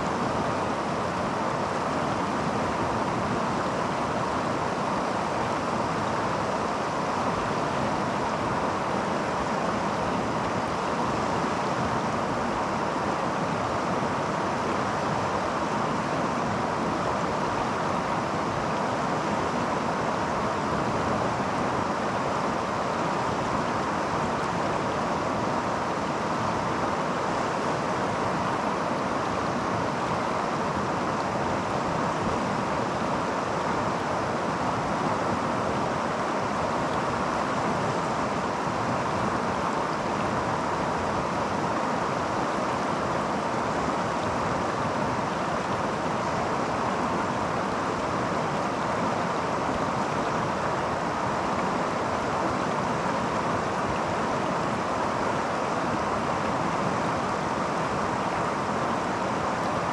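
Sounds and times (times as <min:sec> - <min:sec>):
creek water flowing: 0:00.0 - 0:59.9.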